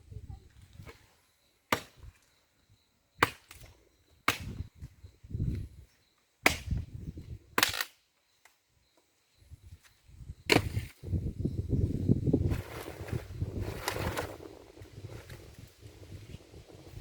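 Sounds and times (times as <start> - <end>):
wood chopping blows: 4.2 - 4.6, 10.5 - 10.9.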